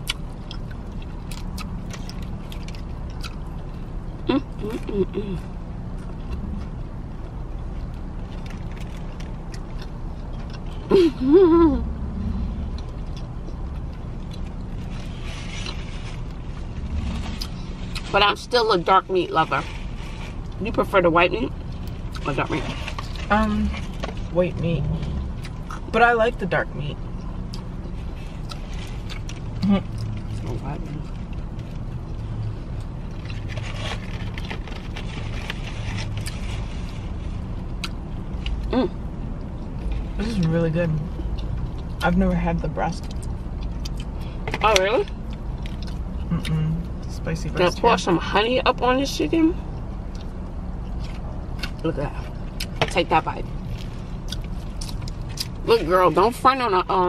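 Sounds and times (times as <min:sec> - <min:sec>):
people eating crunchy food: 0:00.0 - 0:05.0, 0:27.1 - 0:38.9, 0:53.6 - 0:55.6
person chewing: 0:00.0 - 0:10.9, 0:12.2 - 0:18.1, 0:24.9 - 0:25.9, 0:27.1 - 0:36.5, 0:43.0 - 0:44.4, 0:45.0 - 0:47.1, 0:49.8 - 0:52.8, 0:53.6 - 0:55.6
low hum inside a car: 0:00.0 - 0:57.0
car cabin hum: 0:20.6 - 0:28.0
person humming mmm: 0:46.3 - 0:46.8.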